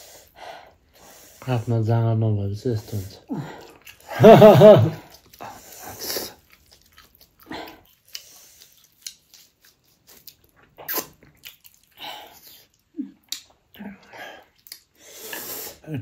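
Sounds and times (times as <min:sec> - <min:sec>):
biting and chewing food: 0:05.0 - 0:15.0.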